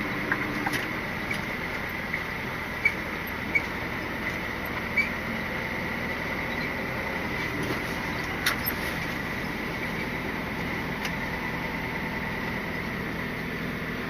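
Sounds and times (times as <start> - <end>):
diesel engine humming: 0.0 - 14.0
cab squeaks and ticks: 0.1 - 5.6, 6.4 - 9.2.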